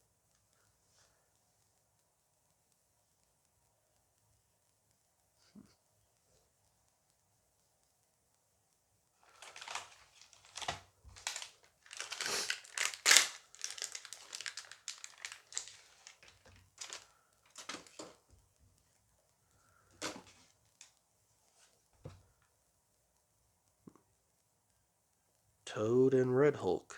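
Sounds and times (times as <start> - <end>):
foil pack tearing and crinkling: 9.2 - 18.2.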